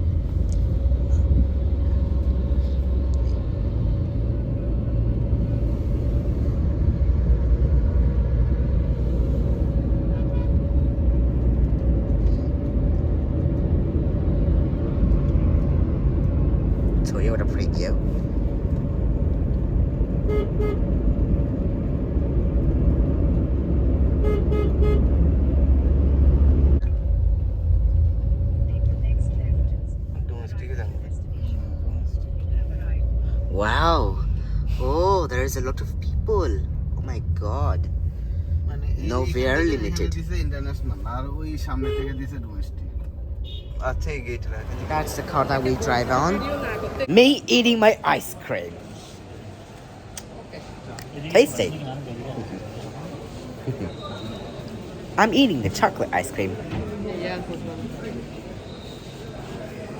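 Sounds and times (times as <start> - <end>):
car engine and road noise: 0.0 - 59.9
car horn beeps: 10.1 - 10.7, 20.1 - 21.0, 24.1 - 25.3, 41.6 - 42.3, 43.4 - 43.8.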